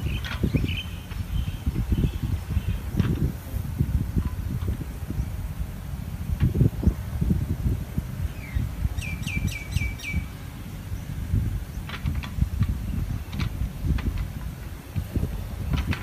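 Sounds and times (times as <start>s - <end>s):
bird chirping: 0.0s - 2.9s, 8.3s - 11.9s
steady low rumble: 0.0s - 16.0s.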